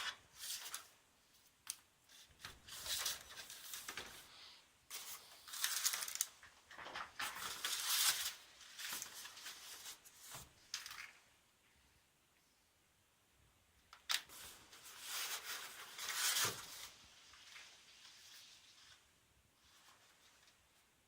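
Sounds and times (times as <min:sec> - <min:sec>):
packaging rustling and crinkling: 0:04.9 - 0:11.1.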